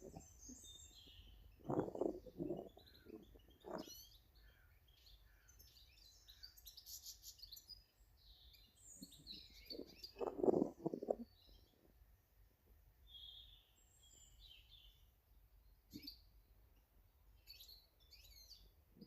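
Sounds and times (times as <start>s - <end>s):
small birds chirping: 0.0s - 12.2s, 13.0s - 19.0s.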